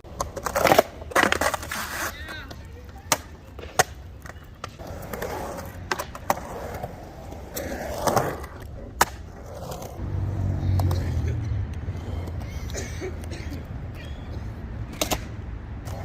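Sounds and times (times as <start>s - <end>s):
skateboard wheels rumbling: 0.0s - 13.9s, 14.5s - 16.0s
sharp skateboard clicks: 0.1s - 10.0s, 14.8s - 16.0s.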